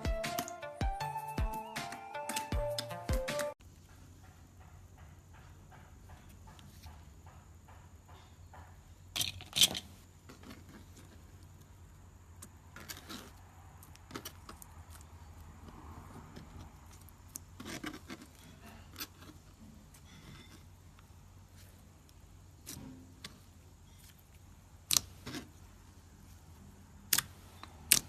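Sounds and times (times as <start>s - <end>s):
slime sticky clicks and crackles: 27.1s - 28.0s.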